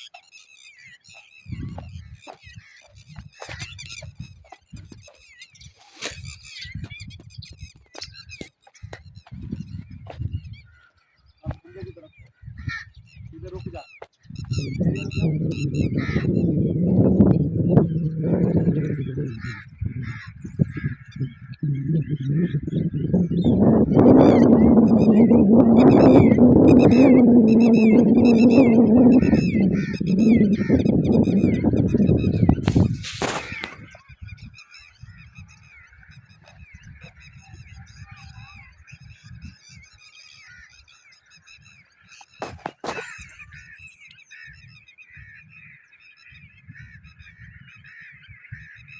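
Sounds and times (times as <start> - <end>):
flock of birds chirping: 0.0 - 48.9
starlings chattering: 0.0 - 48.9
wind rumble on microphone: 0.9 - 48.9.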